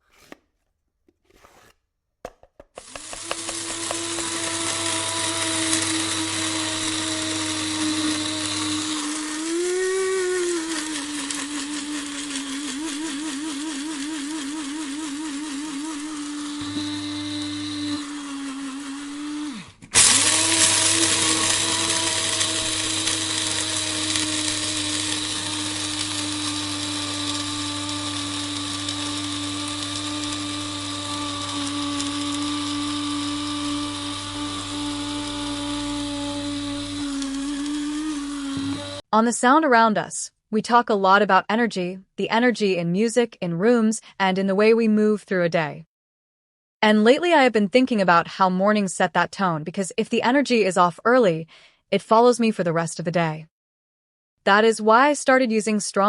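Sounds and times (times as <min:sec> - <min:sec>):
electric coffee grinder motor: 0:02.8 - 0:39.1.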